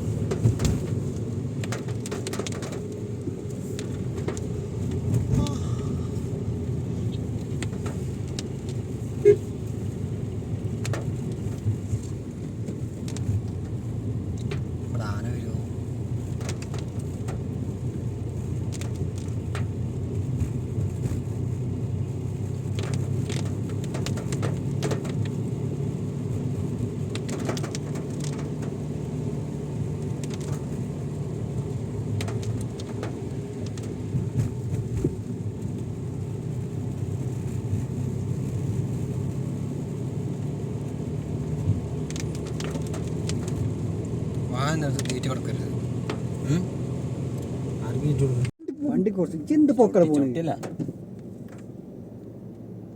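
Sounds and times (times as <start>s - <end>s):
car engine and road noise: 0.0s - 52.9s
light clicks and knocks: 32.1s - 35.8s.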